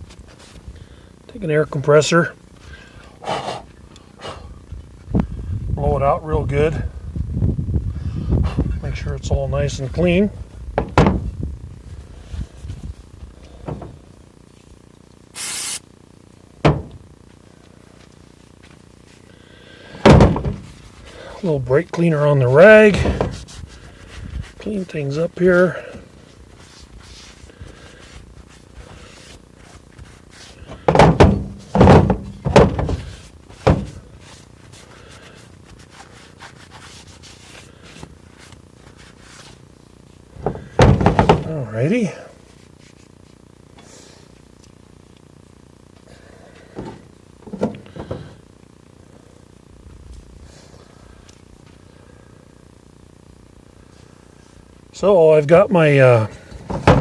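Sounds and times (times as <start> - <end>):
heavy thunks on a workbench: 10.7 - 11.3, 16.6 - 17.0, 20.0 - 20.7, 22.9 - 23.4, 30.7 - 34.1, 40.4 - 41.5, 56.5 - 57.0
compressed air blow gun hiss: 15.4 - 15.9.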